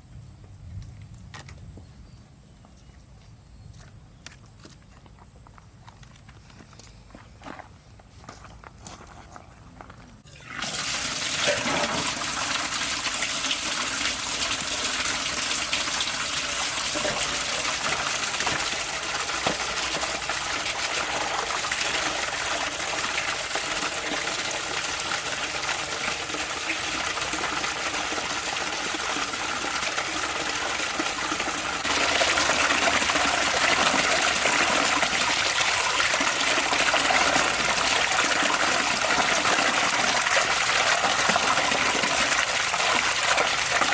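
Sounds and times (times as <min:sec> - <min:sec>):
water running from a tap: 0:10.3 - 0:43.9.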